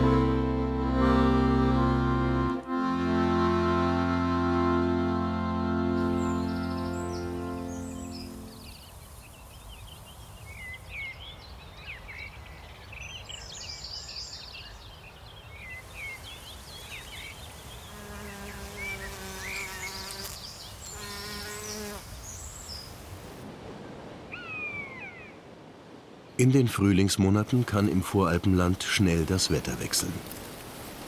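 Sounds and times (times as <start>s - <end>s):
birds chirping and singing: 5.9s - 8.8s
flying insect buzzing past: 15.7s - 23.4s.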